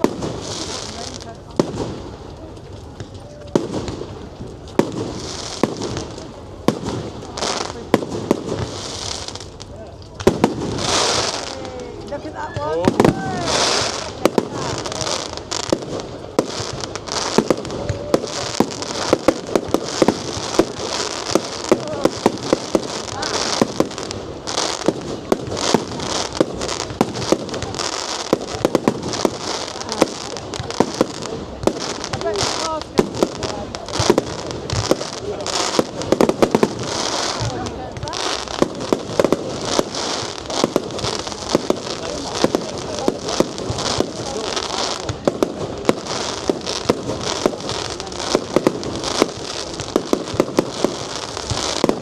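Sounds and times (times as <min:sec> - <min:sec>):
fireworks bangs: 0:00.0 - 0:52.0
fireworks crackling: 0:00.0 - 0:52.0.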